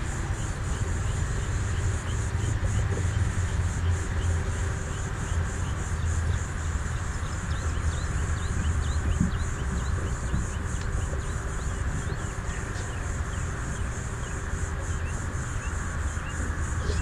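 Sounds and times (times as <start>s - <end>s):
faint high pulsing chirring: 0.0s - 17.0s
steady low rumble: 0.0s - 17.0s.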